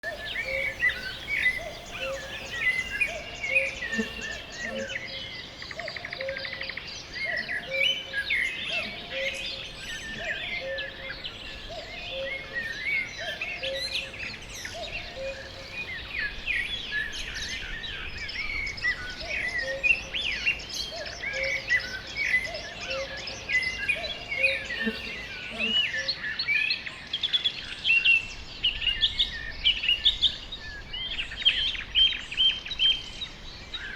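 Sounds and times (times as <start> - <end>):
low bird call: 0.0 - 26.2
songbirds chirping and trilling: 0.0 - 33.9.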